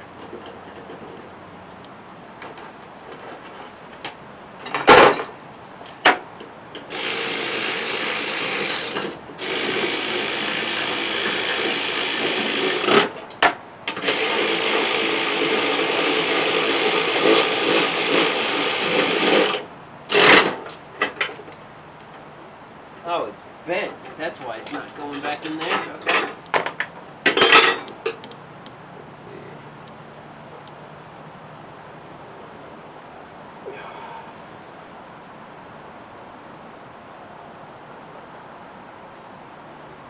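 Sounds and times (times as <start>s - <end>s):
power drill running: 6.9s - 13.1s, 13.9s - 20.6s.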